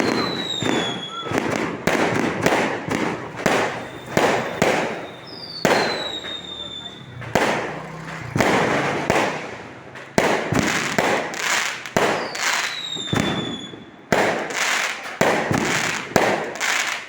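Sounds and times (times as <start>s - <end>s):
falling firework whistle: 0.0s - 9.4s, 11.5s - 14.0s
fireworks bangs: 0.0s - 17.0s
fireworks crackling fizz: 0.0s - 17.0s.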